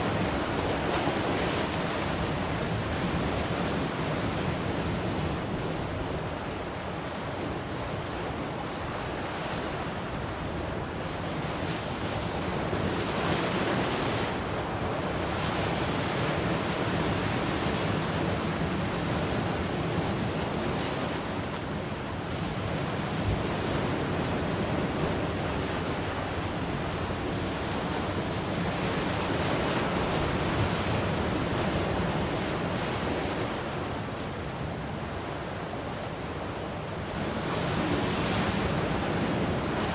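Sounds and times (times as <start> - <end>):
ocean waves breaking: 22.4 - 39.9.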